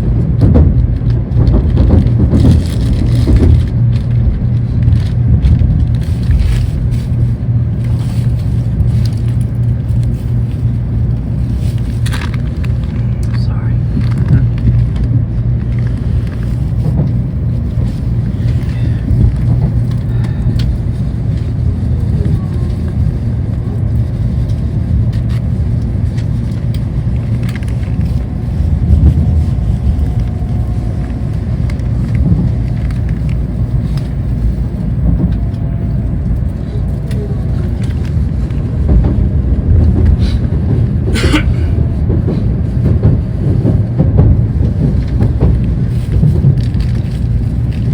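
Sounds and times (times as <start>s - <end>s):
train low rumble inside car: 0.0s - 47.9s.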